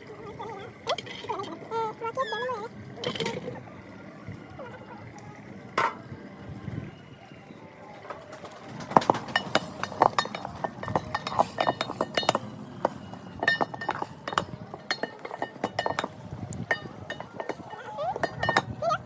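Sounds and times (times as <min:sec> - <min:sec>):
dishes and cutlery clinking: 0:08.9 - 0:18.8.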